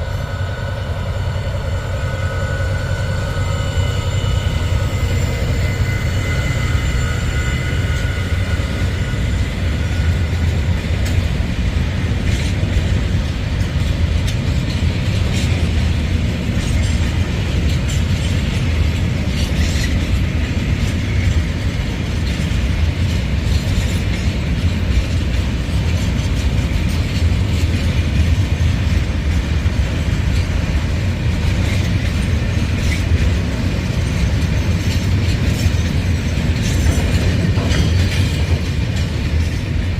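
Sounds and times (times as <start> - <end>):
high whine: 0.0 - 13.2
diesel train rumbling: 0.0 - 39.9
wheels clacking over rail joints: 0.0 - 39.9.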